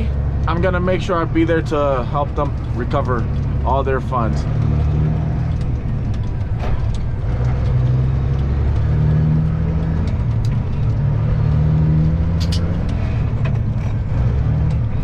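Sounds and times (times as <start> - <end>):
truck diesel engine droning: 0.0 - 15.0
short clicks or rattles: 12.4 - 13.0.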